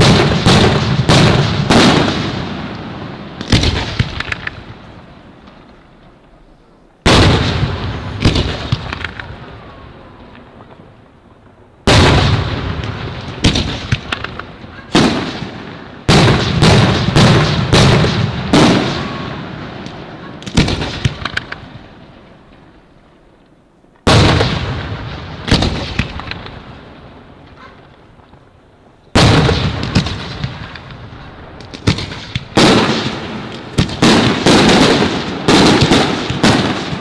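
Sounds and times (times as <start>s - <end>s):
fireworks bursting with bangs: 0.0s - 22.9s, 24.0s - 28.5s, 29.1s - 37.0s
firework crackles: 0.0s - 37.0s.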